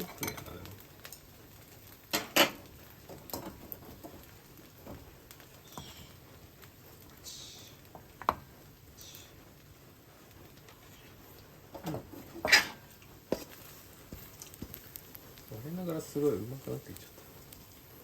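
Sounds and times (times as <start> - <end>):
utensils clinking on cookware: 0.0 - 0.7, 2.1 - 3.6, 11.8 - 12.9
utensils scraping cookware: 11.8 - 13.5.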